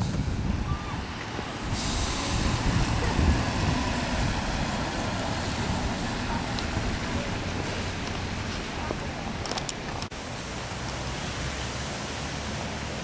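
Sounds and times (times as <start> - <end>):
rushing hiss: 0.0 - 8.7
car tyre and road noise: 0.0 - 13.0.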